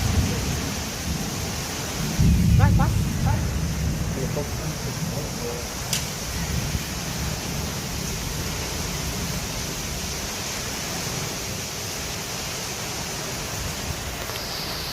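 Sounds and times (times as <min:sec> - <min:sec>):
wind buffeting microphone: 0:00.0 - 0:11.6
rain: 0:00.0 - 0:14.9
wind: 0:00.0 - 0:14.9.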